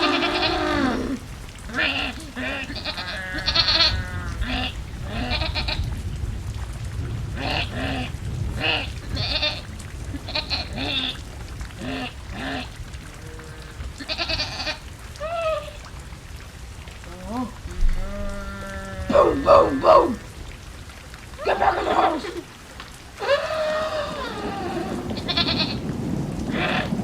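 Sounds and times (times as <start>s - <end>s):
farm animals bleating: 0.0s - 1.1s, 1.7s - 5.8s, 11.8s - 14.8s, 17.9s - 19.8s, 24.1s - 25.8s
rain: 0.0s - 27.0s.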